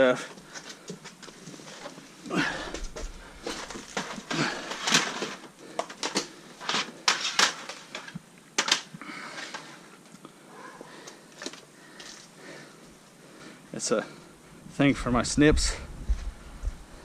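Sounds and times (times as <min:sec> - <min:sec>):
objects clacking and knocking: 0:02.7 - 0:09.7
packaging crinkling: 0:02.9 - 0:09.6.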